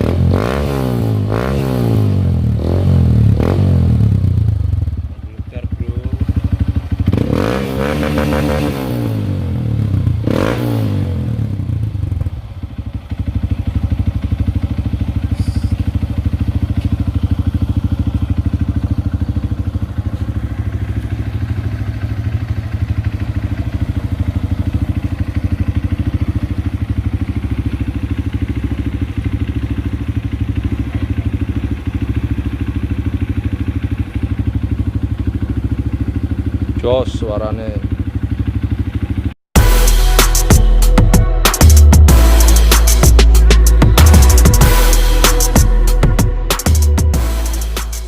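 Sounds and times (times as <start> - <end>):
motorcycle engine revving and idling: 0.0 - 48.0.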